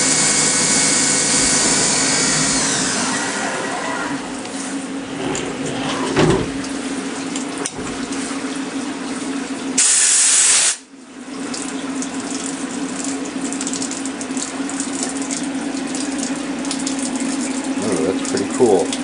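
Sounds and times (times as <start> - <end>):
mill motor hum: 0.0 - 8.6
coolant spray splashing hiss: 9.8 - 10.9.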